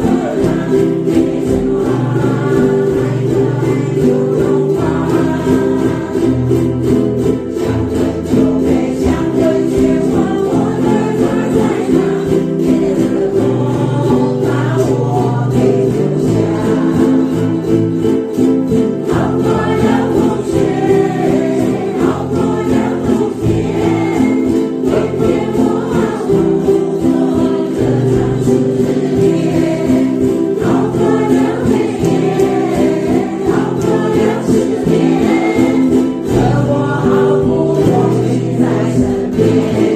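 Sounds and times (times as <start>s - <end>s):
group of voices singing: 0.0s - 39.9s
strummed ukulele: 0.0s - 39.9s.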